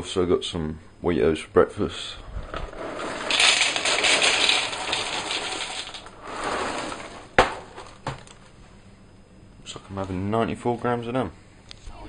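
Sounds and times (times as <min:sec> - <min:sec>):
cereal pouring into a bowl: 0:02.7 - 0:07.2.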